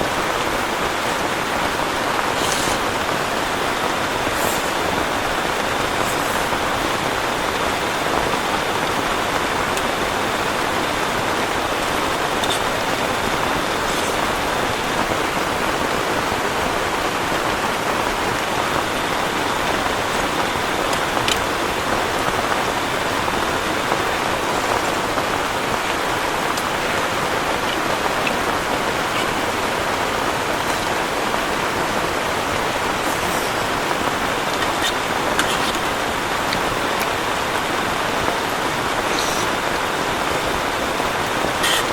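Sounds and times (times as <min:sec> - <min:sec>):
heavy rain: 0:00.0 - 0:41.9
sharp raindrop ticks: 0:17.4 - 0:31.2.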